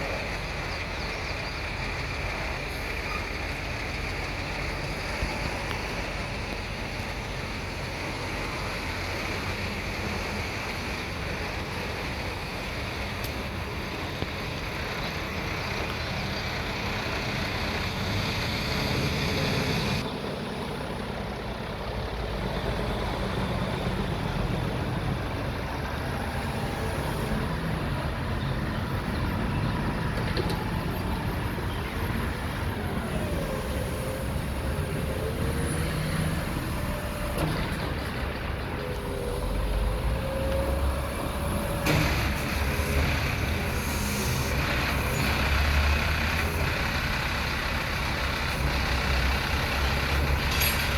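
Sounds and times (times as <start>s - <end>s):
garbage truck engine: 0.0s - 50.9s
hydraulics working lift arms: 23.2s - 50.9s.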